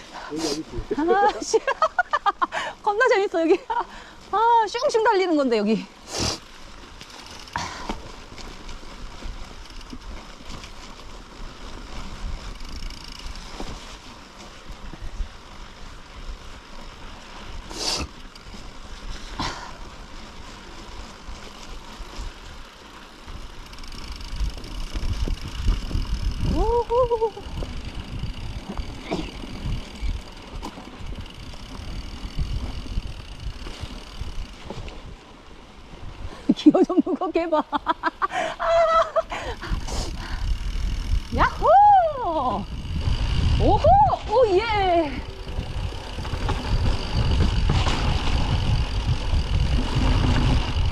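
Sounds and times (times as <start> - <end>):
bike tyres rolling on snow: 0.0 - 50.9
bike knocking and rattling: 1.0 - 36.2, 37.8 - 50.9
wind rumbling on microphone: 18.5 - 36.6, 38.1 - 50.9.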